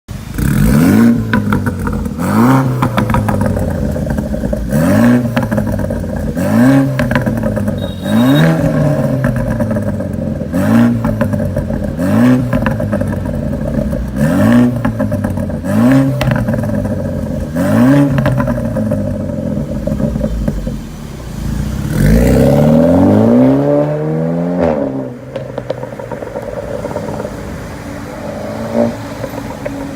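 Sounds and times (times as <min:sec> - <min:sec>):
car engine revving: 0:00.1 - 0:29.9
exhaust pops: 0:00.3 - 0:23.4, 0:24.6 - 0:29.9.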